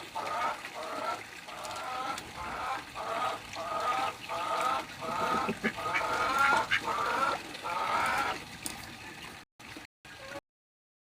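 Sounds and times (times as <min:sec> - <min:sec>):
chicken calling: 0:01.9 - 0:08.4.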